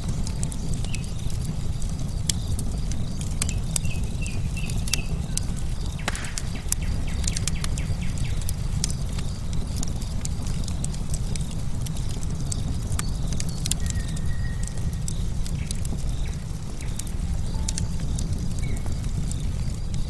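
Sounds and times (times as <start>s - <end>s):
bird chirping: 0.0s - 1.4s, 2.3s - 8.5s, 13.0s - 20.0s
crickets trilling: 0.0s - 20.0s
wood fire crackling: 0.0s - 20.0s.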